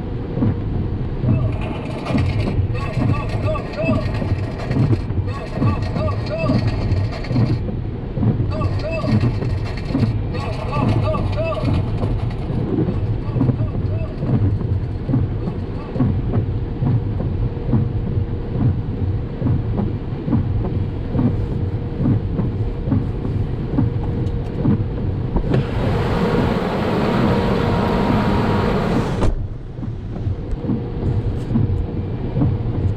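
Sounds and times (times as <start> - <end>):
road and engine rumble: 0.0 - 32.9
vehicle knocks and jolts: 0.3 - 32.9
loud rushing noise: 25.2 - 32.8.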